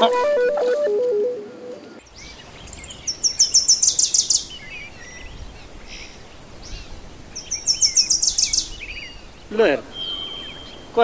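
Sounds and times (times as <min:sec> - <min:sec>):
outdoor hiss: 0:00.0 - 0:11.0
soft bird chirps: 0:02.0 - 0:11.0
bird high repeated notes: 0:09.9 - 0:11.0.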